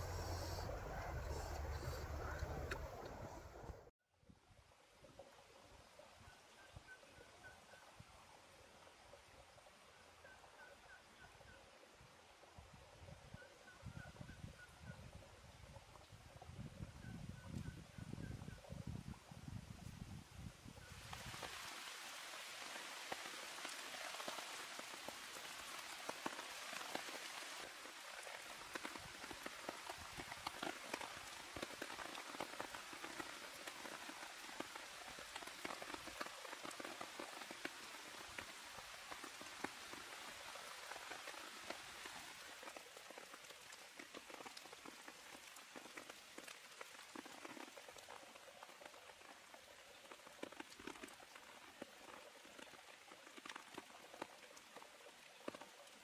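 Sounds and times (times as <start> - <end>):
steady rain falling: 20.8 - 56.0.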